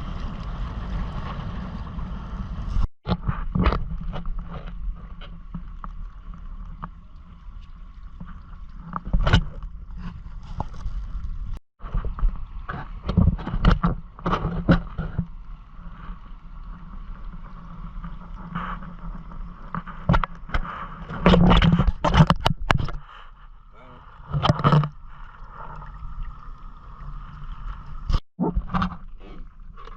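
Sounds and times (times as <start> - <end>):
water splashing against hull: 0.0 - 29.9
knocks and clicks from boat: 8.2 - 10.7, 11.8 - 15.3, 19.7 - 23.1, 24.3 - 25.0.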